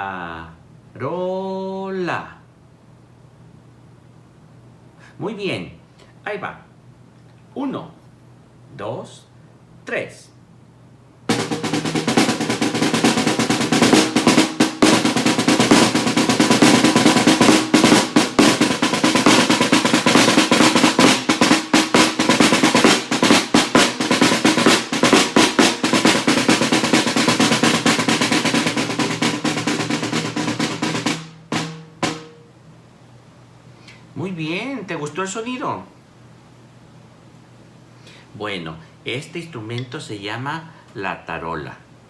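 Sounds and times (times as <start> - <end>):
snare drum rolls: 11.3 - 32.5.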